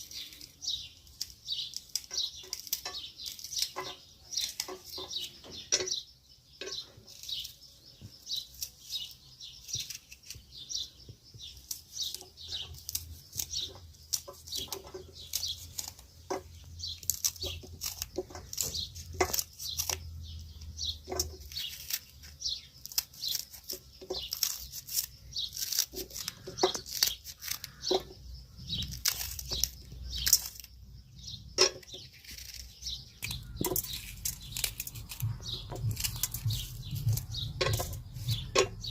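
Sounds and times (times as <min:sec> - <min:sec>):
birds chirping: 0:00.0 - 0:38.9
small knocks: 0:01.9 - 0:06.0, 0:13.4 - 0:20.1, 0:20.9 - 0:21.7, 0:33.2 - 0:38.9.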